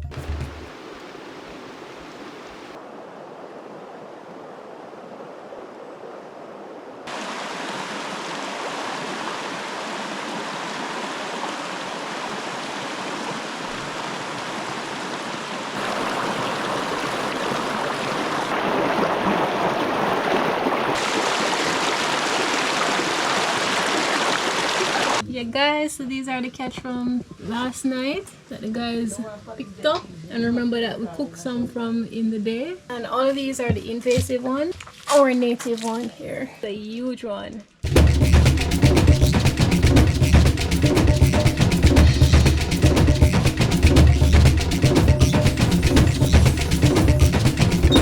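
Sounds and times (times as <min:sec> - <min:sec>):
river rushing over rocks: 0:07.0 - 0:25.2.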